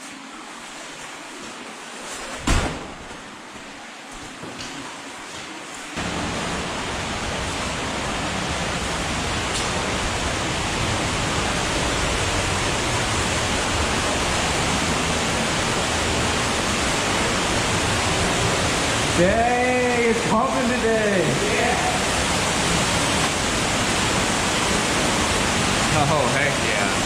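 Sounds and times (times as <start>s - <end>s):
waterfall rushing in a cave: 5.0s - 27.0s.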